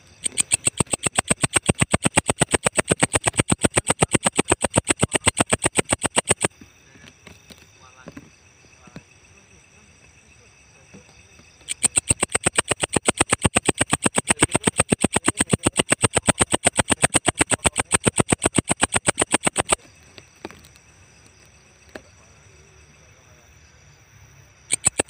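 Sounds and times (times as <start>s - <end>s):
katydid chirping rapidly: 0.0s - 6.5s, 11.6s - 20.0s, 24.7s - 25.0s.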